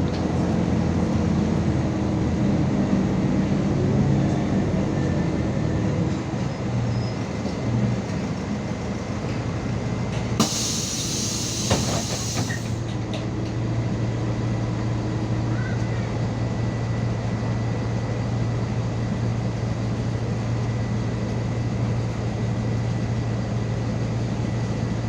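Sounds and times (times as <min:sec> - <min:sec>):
bus engine and rolling noise: 0:00.0 - 0:25.0
compressed air hiss: 0:10.4 - 0:12.8.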